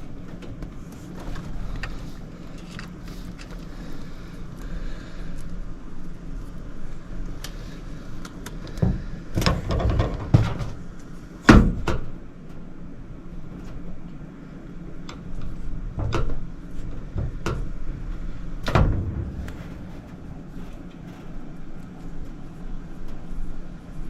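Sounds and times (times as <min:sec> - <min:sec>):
knocks and clunks from repair work: 0:08.7 - 0:12.2, 0:15.9 - 0:17.9, 0:18.6 - 0:21.5.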